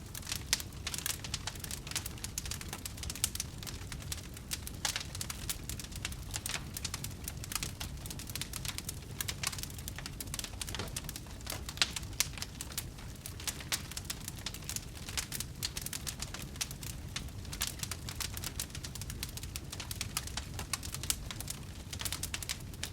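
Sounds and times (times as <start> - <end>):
fire crackling and popping: 0.0 - 22.9
low rumble of fire: 0.0 - 22.9.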